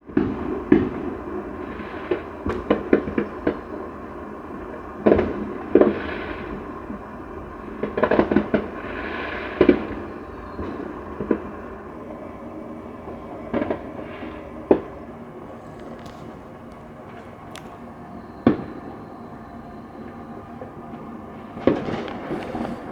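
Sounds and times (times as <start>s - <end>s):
firework crackling: 12.8s - 22.9s
firework bangs: 13.5s - 22.9s.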